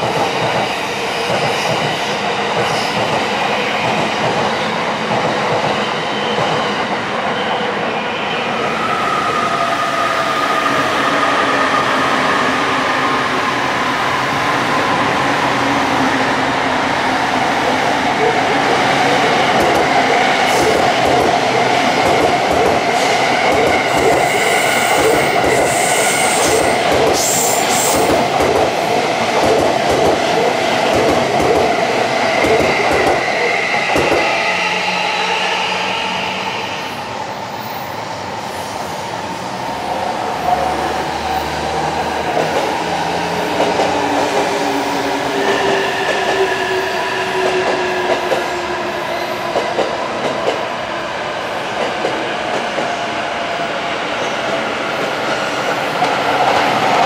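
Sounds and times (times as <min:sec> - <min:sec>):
train wheels clattering over rails: 0:19.5 - 0:34.3.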